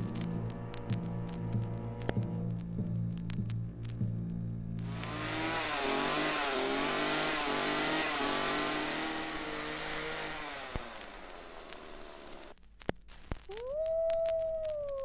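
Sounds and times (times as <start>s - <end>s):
chainsaw revving: 4.8s - 12.5s.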